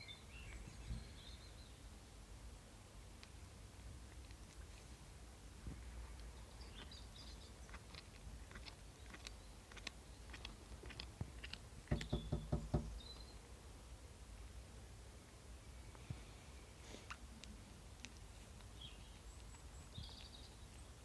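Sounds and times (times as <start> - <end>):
pet crunching a snack: 6.1 - 12.0, 17.0 - 18.8
louder knocks: 11.9 - 13.0.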